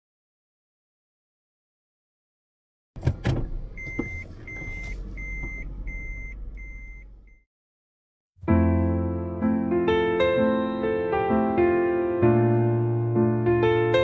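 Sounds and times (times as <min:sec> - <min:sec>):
car warning chime beeping: 0:03.0 - 0:07.4.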